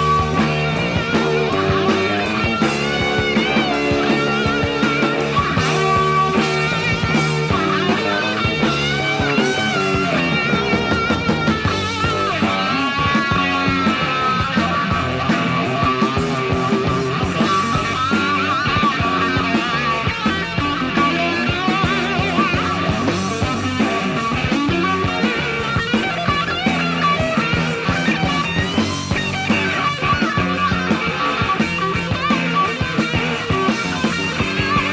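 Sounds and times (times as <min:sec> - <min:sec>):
electric guitar solo: 0:00.0 - 0:34.9
hard rock band playing: 0:00.0 - 0:34.9.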